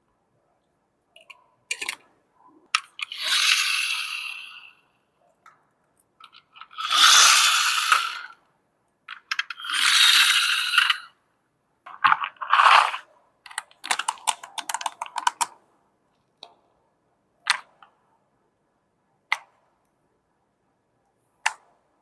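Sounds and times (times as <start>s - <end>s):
packaging rustling and scraping: 11.9s - 13.1s
small clicks and taps: 13.5s - 15.6s.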